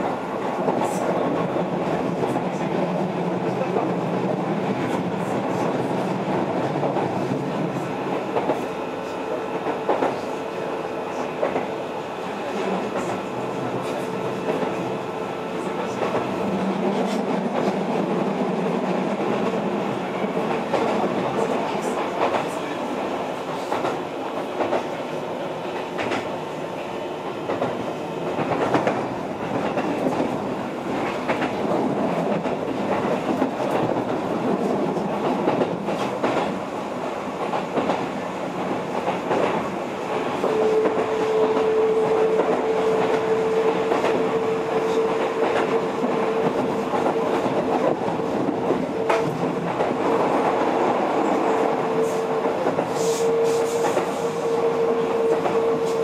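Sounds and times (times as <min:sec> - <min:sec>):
train wheels rumbling on rail: 0:00.0 - 0:56.0
clacks over rail joints: 0:23.6 - 0:24.0, 0:25.8 - 0:26.3, 0:27.5 - 0:36.6, 0:40.4 - 0:50.8.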